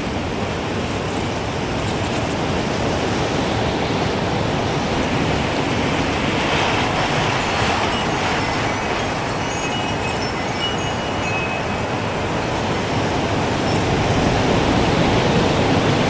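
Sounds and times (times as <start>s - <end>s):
gusting wind: 0.0s - 16.0s
wind chime tinkling: 6.6s - 15.4s.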